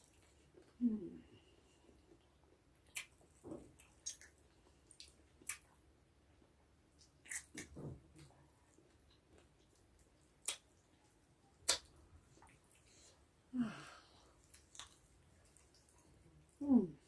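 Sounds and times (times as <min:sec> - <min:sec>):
lip and teeth clicks: 0:02.8 - 0:05.8, 0:07.0 - 0:08.3, 0:09.1 - 0:10.9, 0:11.6 - 0:13.0, 0:14.4 - 0:16.5
chewing and sucking bones: 0:14.4 - 0:16.6
person humming: 0:16.6 - 0:17.0.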